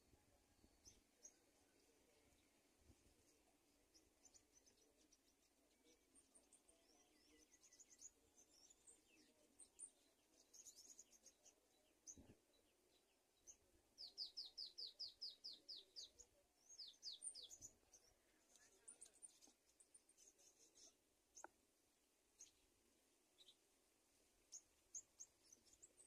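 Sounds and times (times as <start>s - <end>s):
thin high bird chirps: 13.0s - 21.5s.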